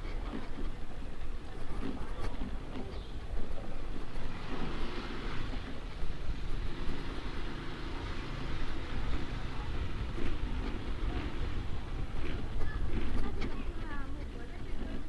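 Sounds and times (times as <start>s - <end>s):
scooter engine running: 0.0s - 15.0s
wind buffeting microphone: 0.0s - 15.0s.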